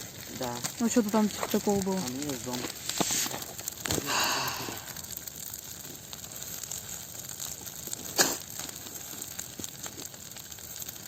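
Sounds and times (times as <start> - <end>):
sharp crack: 0.0 - 10.9
bonfire crackling and hissing: 0.0 - 11.0
rustling noise: 1.3 - 3.7.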